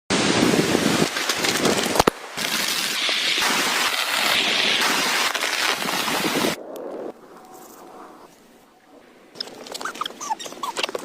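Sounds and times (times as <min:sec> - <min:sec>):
heavy rain pouring: 0:00.1 - 0:06.6
sharp cracks: 0:01.0 - 0:06.9.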